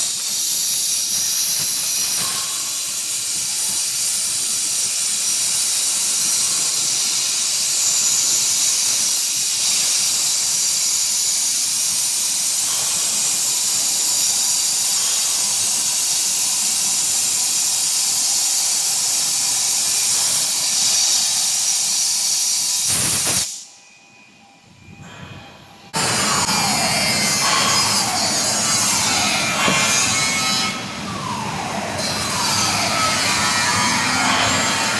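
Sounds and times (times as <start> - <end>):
plasma torch hissing: 0.0 - 10.9, 12.0 - 23.8.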